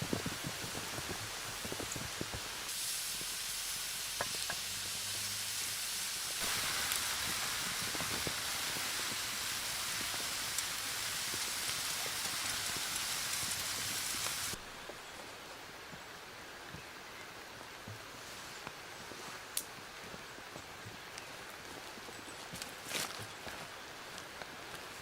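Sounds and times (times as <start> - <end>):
small crackles: 0.0 - 3.4, 5.9 - 15.3, 18.4 - 25.0
food sizzling on hot plate: 0.0 - 14.6.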